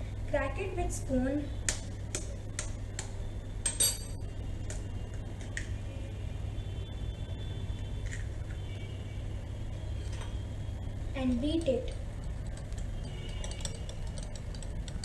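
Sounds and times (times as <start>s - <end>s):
low steady hum: 0.0s - 15.0s
spoon tapping egg shell: 11.9s - 15.0s.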